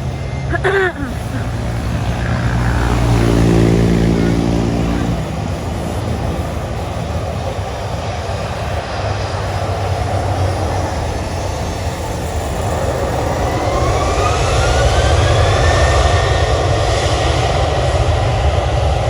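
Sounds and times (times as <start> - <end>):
jet engines rushing: 0.0 - 19.0.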